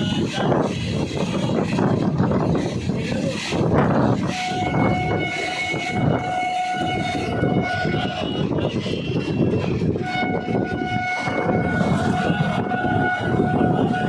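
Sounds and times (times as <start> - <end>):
moving train rumbling: 0.0 - 14.0
train horn blast: 3.9 - 14.0.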